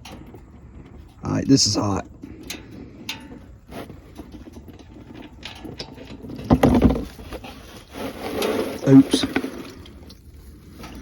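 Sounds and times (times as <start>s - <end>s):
clicks and scrapes of tool work: 2.4s - 11.0s.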